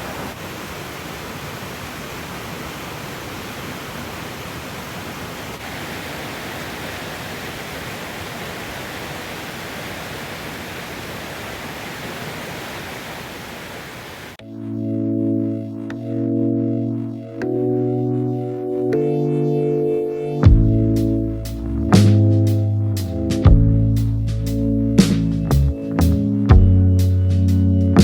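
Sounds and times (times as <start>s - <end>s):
stream rushing over rocks: 0.0s - 14.4s.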